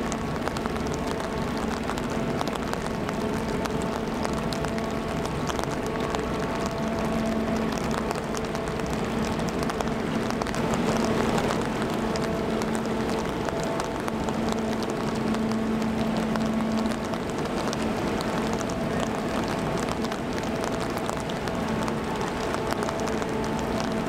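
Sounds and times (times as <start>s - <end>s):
rain hitting an umbrella: 0.0s - 24.0s
ship low hum: 0.0s - 24.0s.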